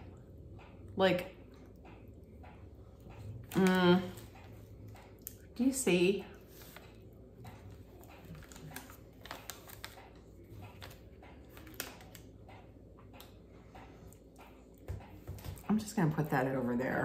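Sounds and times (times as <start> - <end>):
low room hum: 0.0 - 17.0
person quietly chewing: 6.3 - 15.7.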